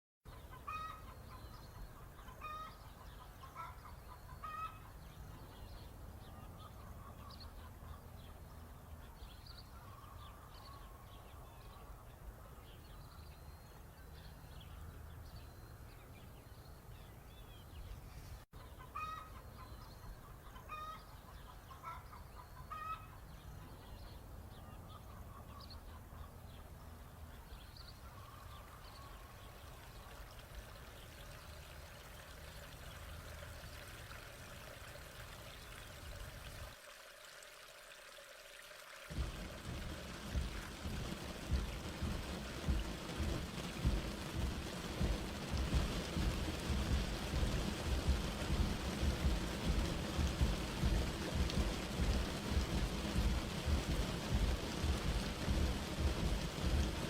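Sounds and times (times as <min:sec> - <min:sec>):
hen clucking: 0:00.4 - 0:01.2
steady low noise: 0:39.1 - 0:57.0.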